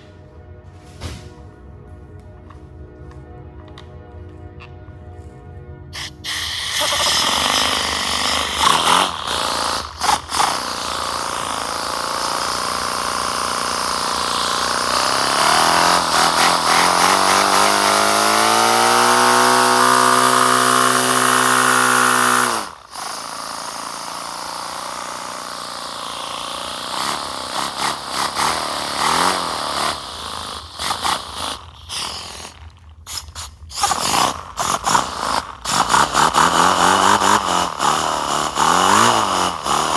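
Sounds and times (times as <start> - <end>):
air engine hissing buzz: 6.0 - 39.9.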